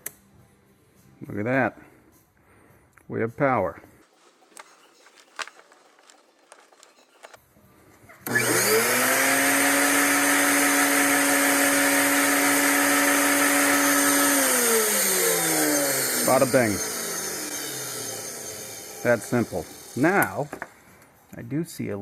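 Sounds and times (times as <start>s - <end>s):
vacuum motor whining: 8.2s - 21.1s.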